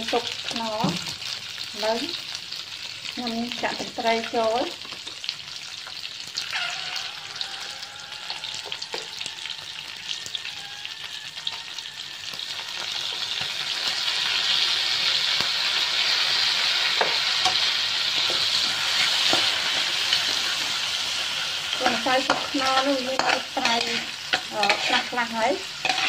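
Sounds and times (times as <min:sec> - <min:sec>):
crab sizzling in a wok: 0:00.0 - 0:26.0
spatula scraping and tapping pan: 0:21.8 - 0:26.0.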